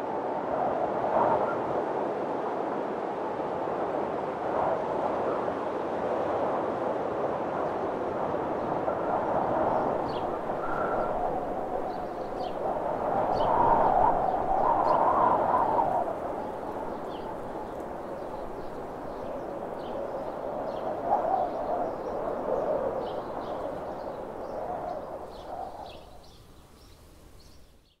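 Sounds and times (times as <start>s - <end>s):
small birds chirping: 9.7s - 28.0s.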